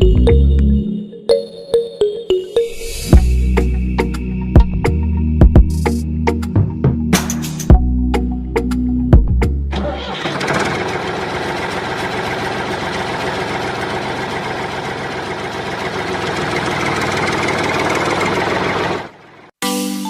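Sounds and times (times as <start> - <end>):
small engine chugging: 9.8 - 19.5.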